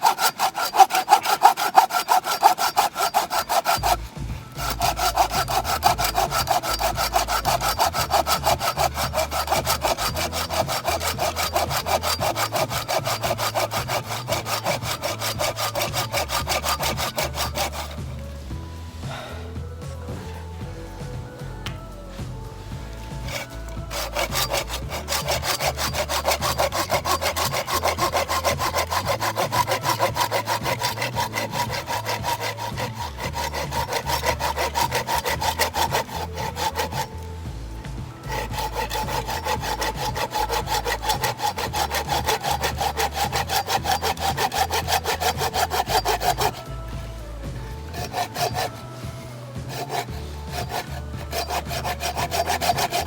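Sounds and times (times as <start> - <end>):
saw cutting log: 0.0 - 53.0.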